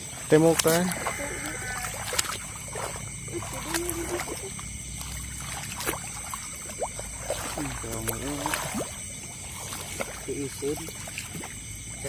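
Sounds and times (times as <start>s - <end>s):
footsteps splashing through water: 0.0s - 12.0s.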